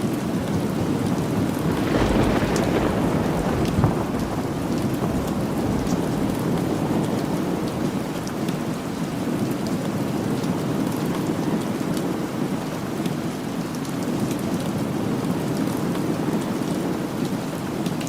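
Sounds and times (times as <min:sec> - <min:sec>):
steady rain falling: 0:00.0 - 0:18.0
low rumble of thunder: 0:00.6 - 0:11.0.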